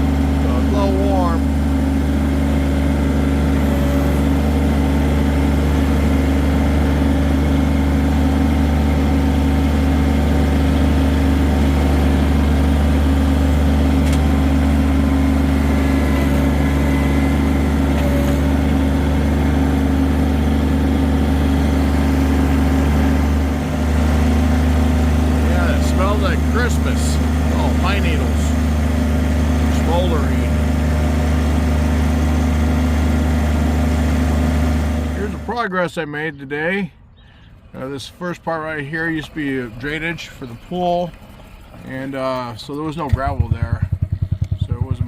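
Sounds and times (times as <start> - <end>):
diesel tractor engine running: 0.0 - 45.0.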